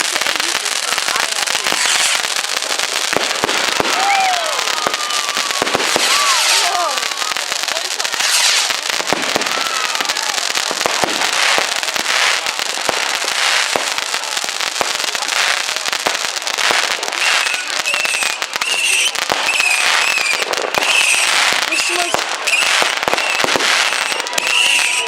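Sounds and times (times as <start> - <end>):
fireworks crackling bangs: 0.0 - 25.0
fireworks whistling squeals: 1.6 - 2.3, 3.7 - 10.3, 16.6 - 25.0.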